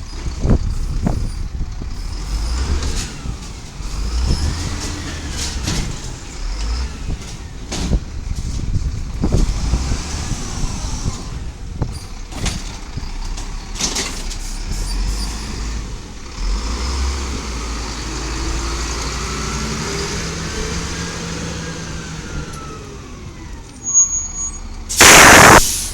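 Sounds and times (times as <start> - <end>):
air hiss: 24.9 - 25.9
rising hydraulic whine: 25.0 - 25.8.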